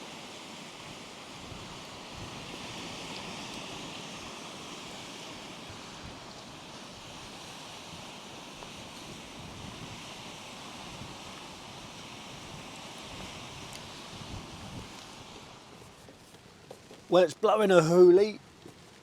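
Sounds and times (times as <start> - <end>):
heavy rain: 0.0 - 19.0
waves breaking on shore: 0.0 - 19.0
strong wind blowing: 1.4 - 8.2, 8.8 - 15.7.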